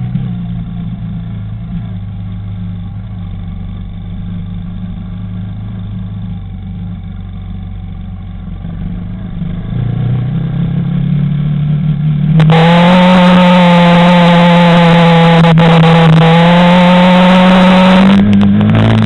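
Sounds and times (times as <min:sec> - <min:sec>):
quad bike engine: 0:00.0 - 0:19.0.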